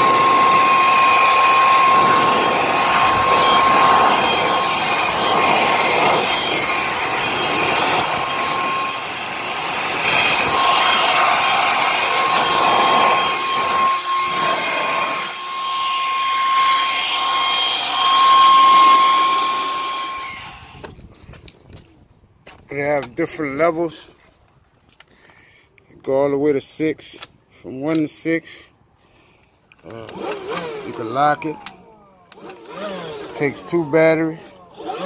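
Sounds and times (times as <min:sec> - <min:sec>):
blower whining: 0:00.0 - 0:21.9, 0:29.4 - 0:35.0.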